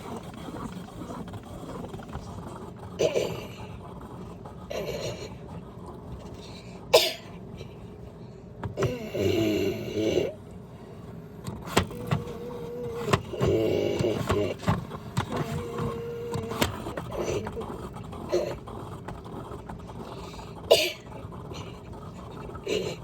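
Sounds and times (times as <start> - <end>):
steady hum: 0.0 - 23.0
washing machine motor whirring: 0.0 - 23.0.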